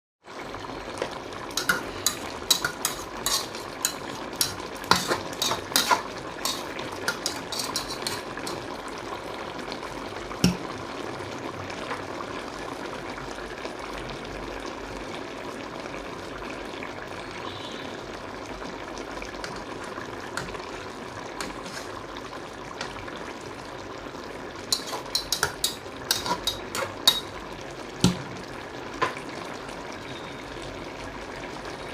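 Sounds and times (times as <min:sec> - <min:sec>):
chicken sizzling in a pan: 0:00.2 - 0:31.9
utensil scraping a pan: 0:01.6 - 0:08.7, 0:20.4 - 0:22.1, 0:24.7 - 0:27.3.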